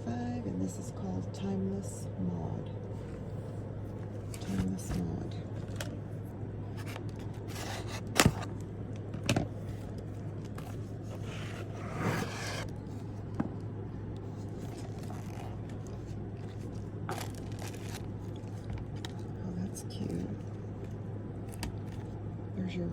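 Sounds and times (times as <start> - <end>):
steady low hum: 0.0 - 22.9
scraping and rustling: 6.7 - 8.6, 9.6 - 13.3, 14.2 - 19.3.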